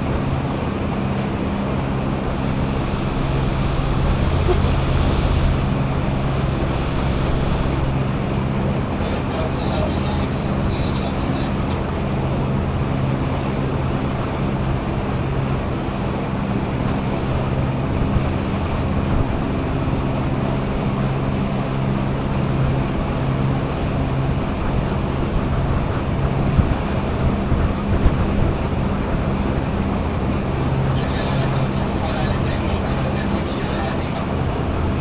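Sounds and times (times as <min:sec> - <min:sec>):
wind on microphone: 0:00.0 - 0:09.0, 0:24.3 - 0:31.0
boat engine humming: 0:00.0 - 0:35.0
water rushing along hull: 0:00.0 - 0:35.0.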